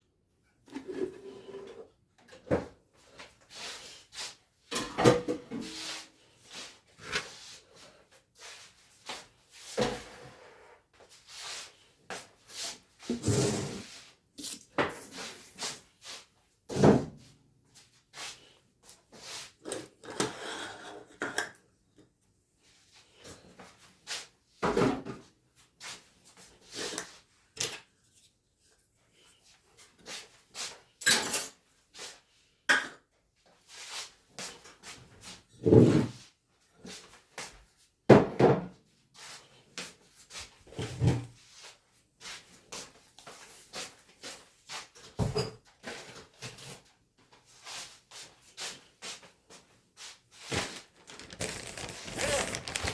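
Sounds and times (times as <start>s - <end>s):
kitchen items knocking and clacking: 4.7s - 5.6s, 51.1s - 52.9s.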